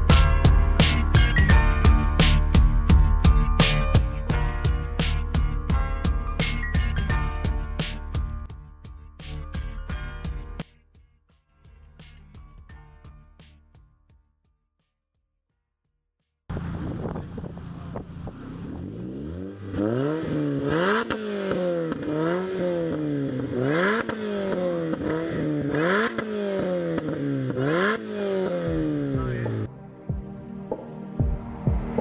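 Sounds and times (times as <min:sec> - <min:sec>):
vehicle engine revving: 0:16.5 - 0:29.7.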